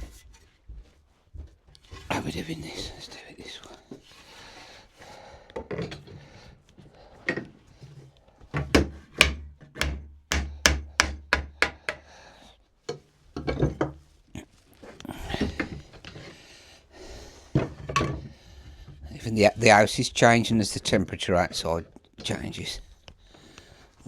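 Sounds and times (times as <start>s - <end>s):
blows knocking on wooden frame: 8.8s - 11.8s.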